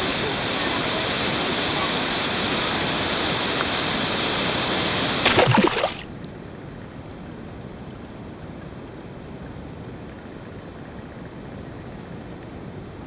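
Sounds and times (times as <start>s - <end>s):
muffled underwater water hiss: 0.0s - 6.0s
water rushing over cascades: 0.0s - 6.1s
water bubbling: 5.2s - 6.1s.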